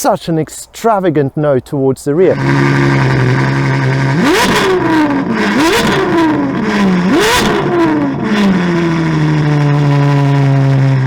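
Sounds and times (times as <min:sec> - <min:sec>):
car engine idling: 0:01.6 - 0:11.0
car engine revving: 0:02.3 - 0:11.0.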